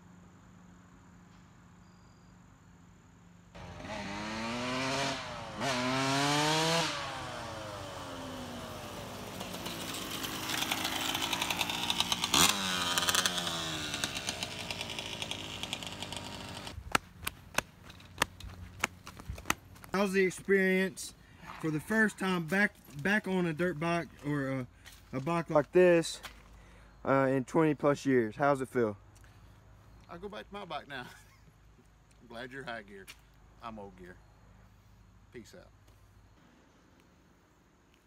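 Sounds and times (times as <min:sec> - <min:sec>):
dirt bike engine revving: 0:03.6 - 0:16.8.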